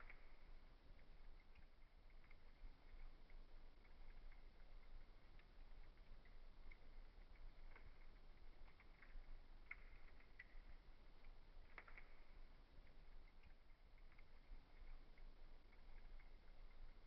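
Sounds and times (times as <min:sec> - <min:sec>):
faint wood fire crackling: 0:00.0 - 0:17.0.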